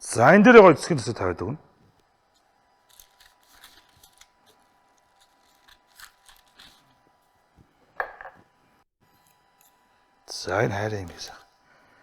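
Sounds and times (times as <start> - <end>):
baking paper crinkling: 2.1 - 7.6.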